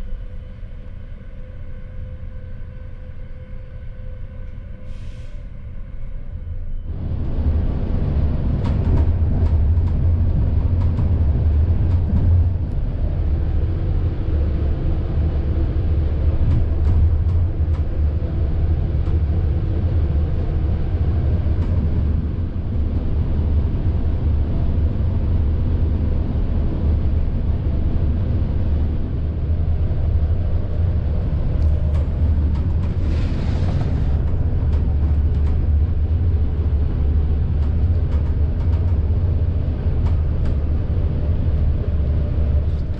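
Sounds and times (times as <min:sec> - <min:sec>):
train rumbling: 0:00.0 - 0:42.9
brief hiss: 0:04.8 - 0:05.6.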